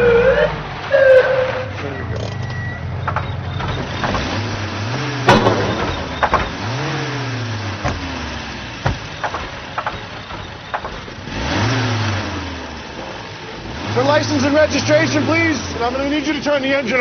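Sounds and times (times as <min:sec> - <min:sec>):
car engine idling with throttle blips: 0:00.0 - 0:17.0
sharp knock: 0:05.3 - 0:06.9.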